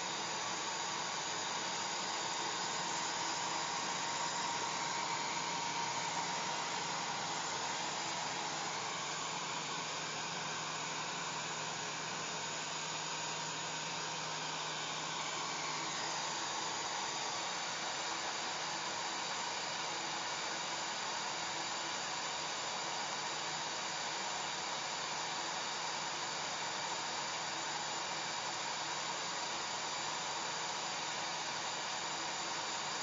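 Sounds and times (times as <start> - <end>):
hair dryer blowing air: 0.0 - 33.0.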